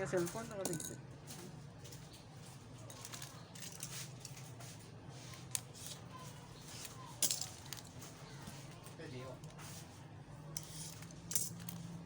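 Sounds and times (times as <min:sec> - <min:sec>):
tools and parts clicking: 0:00.2 - 0:02.1, 0:02.8 - 0:04.5, 0:06.6 - 0:08.1, 0:10.5 - 0:12.0.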